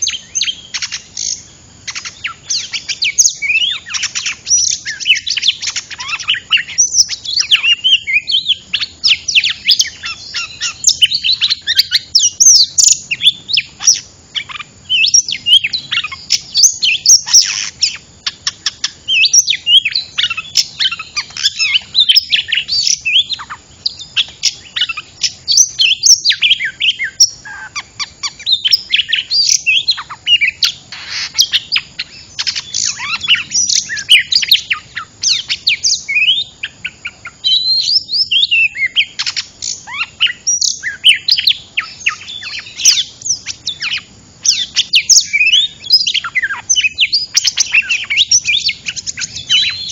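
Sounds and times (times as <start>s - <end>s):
songbird singing: 0.0s - 49.9s.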